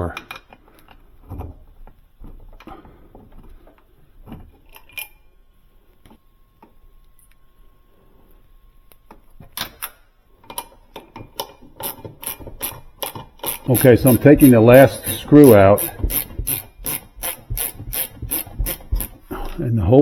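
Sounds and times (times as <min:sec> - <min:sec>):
ratchet wrench clicking: 0:11.8 - 0:14.5, 0:15.2 - 0:19.2.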